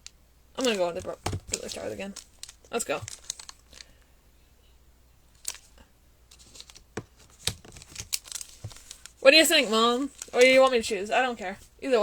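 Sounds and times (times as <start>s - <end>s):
card packs crinkling: 0.6s - 4.0s, 5.4s - 11.7s.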